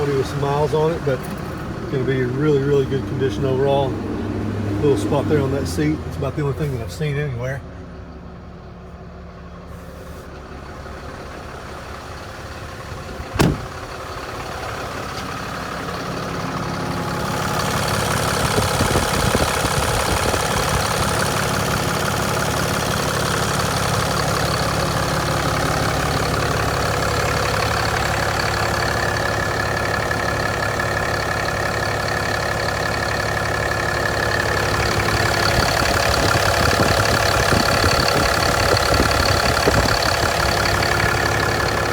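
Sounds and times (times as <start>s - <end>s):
truck engine idling: 0.0s - 41.9s
sharp knock: 13.4s - 13.8s.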